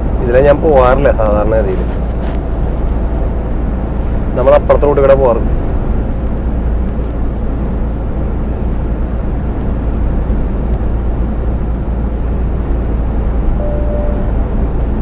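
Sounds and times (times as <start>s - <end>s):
road and tyre noise: 0.0s - 15.0s
truck engine drone: 0.0s - 15.0s
faint tone: 13.6s - 14.7s.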